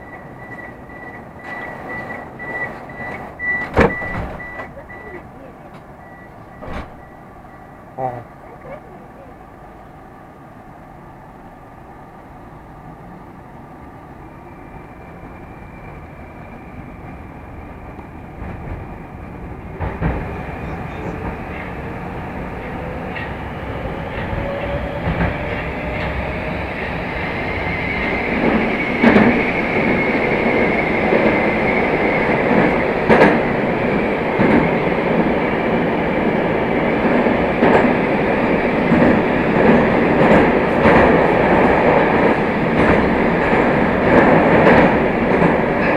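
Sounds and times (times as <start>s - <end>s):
train running noise: 0.0s - 45.9s.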